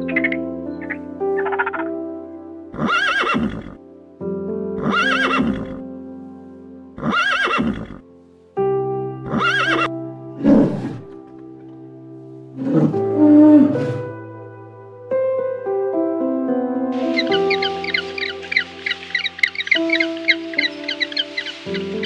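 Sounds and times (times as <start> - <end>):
soft piano music: 0.0 - 22.0
horse whinnying: 2.8 - 3.8, 4.8 - 5.8, 7.0 - 8.0, 9.3 - 11.1
lower animal sounds: 9.2 - 11.2.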